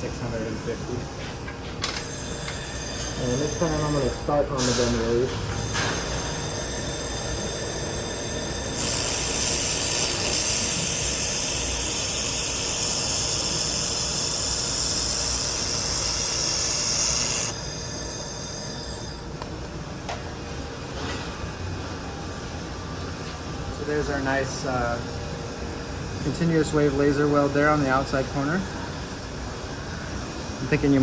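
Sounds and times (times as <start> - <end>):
machine hum: 0.0 - 30.6
laser welder hissing: 2.1 - 19.2.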